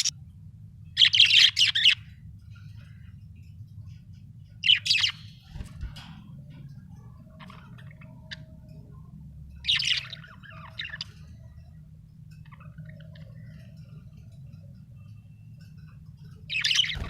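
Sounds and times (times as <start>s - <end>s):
low steady hum: 0.0s - 17.0s
budgerigar chirping: 1.0s - 2.1s.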